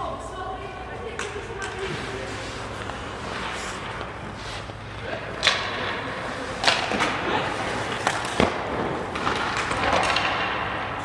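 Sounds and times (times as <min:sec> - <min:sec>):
murmur of voices: 0:00.0 - 0:08.2.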